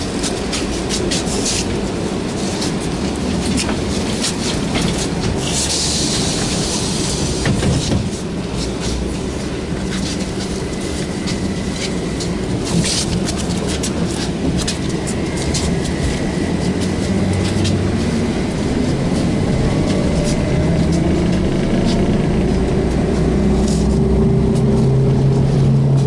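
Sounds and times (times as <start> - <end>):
body rattles and clicks: 0.0 - 26.0
trolleybus cabin drone: 0.0 - 26.0
hiss: 5.4 - 9.4.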